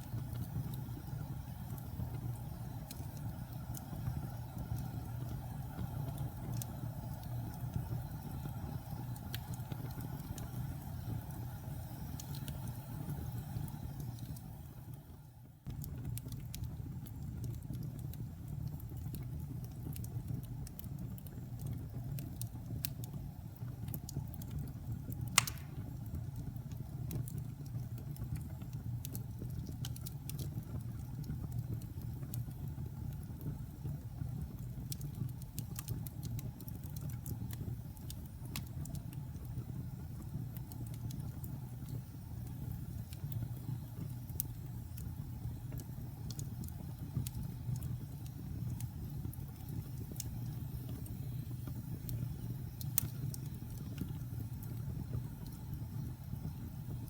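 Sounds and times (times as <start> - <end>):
fire burning in fireplace: 0.0 - 57.0
loud pop of fire: 25.4 - 26.0.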